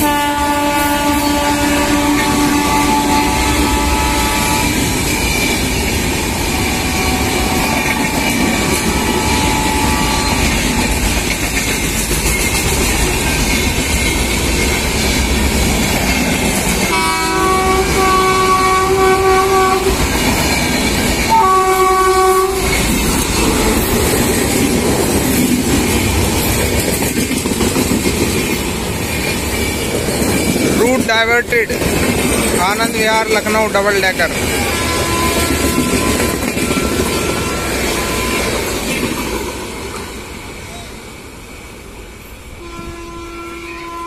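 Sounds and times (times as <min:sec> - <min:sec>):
locomotive horn blasts: 0:00.0 - 0:04.8, 0:06.6 - 0:08.2, 0:08.8 - 0:10.8, 0:16.9 - 0:20.1, 0:21.3 - 0:24.0, 0:34.7 - 0:36.4, 0:42.6 - 0:44.0
train wheels rumbling on rails: 0:00.0 - 0:44.0.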